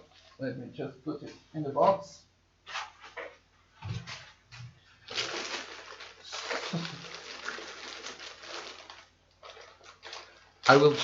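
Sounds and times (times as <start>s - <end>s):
packaging rustling and scraping: 5.0s - 11.0s.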